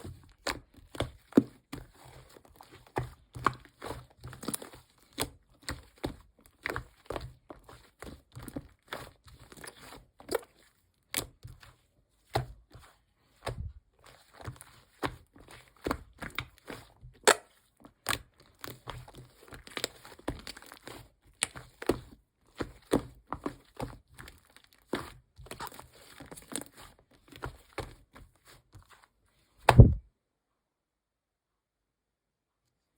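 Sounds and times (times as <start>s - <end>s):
paper and plastic crinkling: 17.8s - 29.1s
heavy thump: 29.7s - 30.0s.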